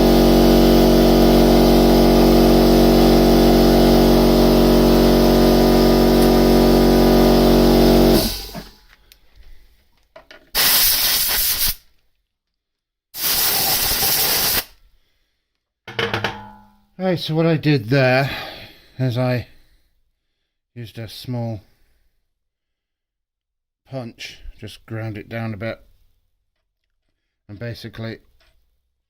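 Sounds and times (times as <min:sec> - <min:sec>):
machine motor humming: 0:00.0 - 0:08.8
compressed air blasts: 0:00.0 - 0:08.9, 0:10.5 - 0:11.8, 0:13.2 - 0:14.8.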